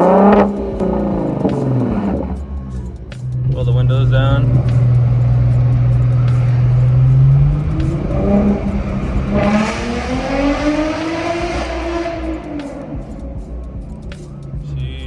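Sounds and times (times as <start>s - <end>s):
car exhaust accelerating: 0.0s - 15.0s.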